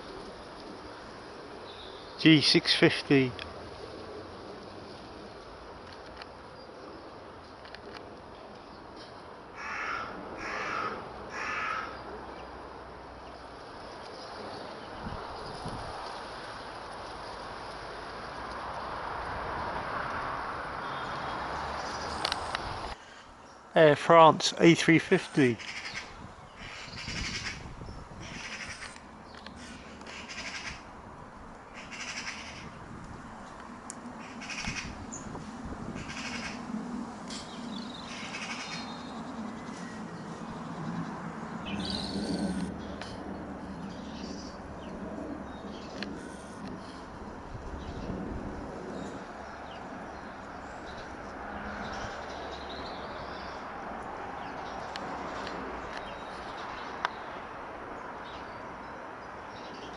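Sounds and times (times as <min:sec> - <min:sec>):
small birds chirping: 0:00.0 - 0:09.2, 0:37.3 - 0:48.2, 0:54.4 - 0:59.9
distant jet aircraft: 0:00.0 - 0:58.9
bird harsh crow-like calls: 0:09.5 - 0:12.4, 0:25.6 - 0:29.0, 0:29.6 - 0:30.9, 0:31.7 - 0:32.8, 0:34.2 - 0:35.3, 0:35.9 - 0:36.7, 0:37.4 - 0:40.3, 0:41.6 - 0:43.2.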